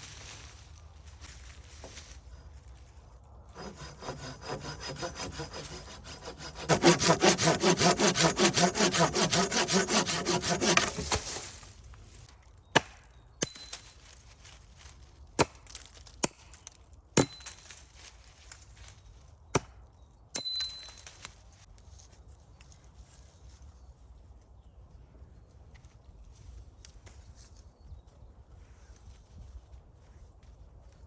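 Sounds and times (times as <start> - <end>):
saw cutting wood: 3.6 - 11.6.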